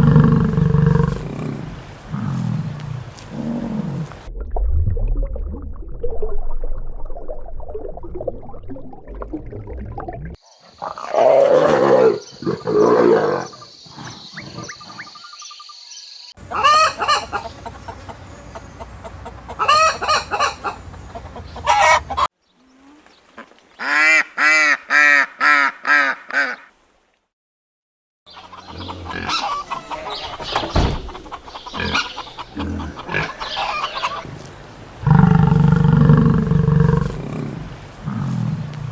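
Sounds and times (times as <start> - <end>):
chickens clucking: 16.4 - 22.3, 28.3 - 38.9.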